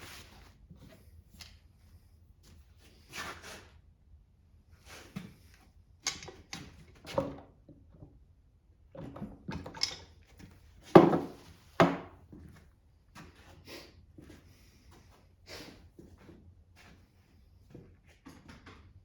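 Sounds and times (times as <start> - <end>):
tools and metal parts clanking: 6.0 - 7.5, 9.0 - 11.4.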